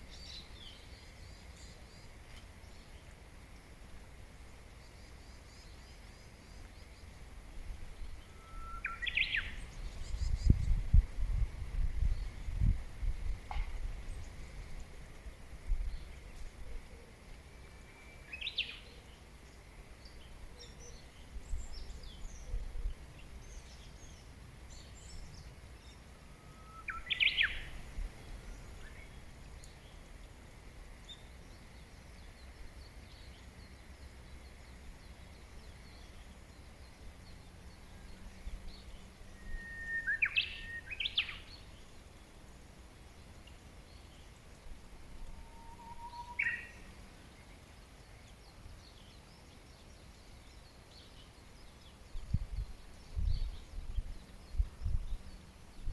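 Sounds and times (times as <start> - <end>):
faint high bird chirps: 8.0 - 10.8, 26.2 - 27.8, 37.9 - 41.9, 45.3 - 46.9
songbird whistled song: 8.0 - 10.8, 17.5 - 19.1, 20.0 - 30.0, 31.0 - 42.0, 45.3 - 55.9.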